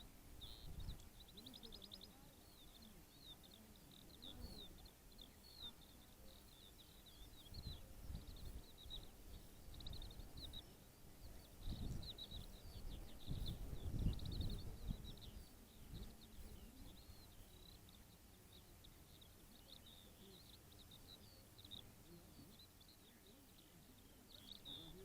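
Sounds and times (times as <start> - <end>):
wind rumble on microphone: 0.4 - 1.1, 7.4 - 10.6, 11.2 - 17.1.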